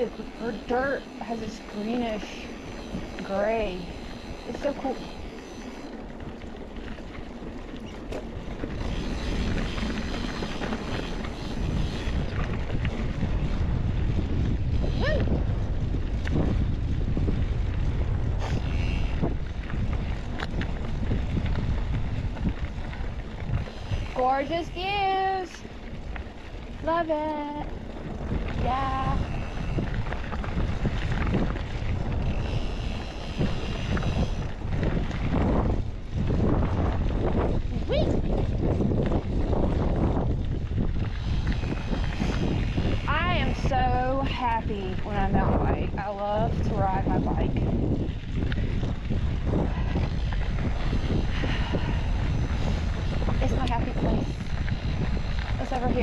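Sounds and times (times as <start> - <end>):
bike tyres rolling over dirt: 0.0 - 56.0
wind buffeting microphone: 0.0 - 56.0.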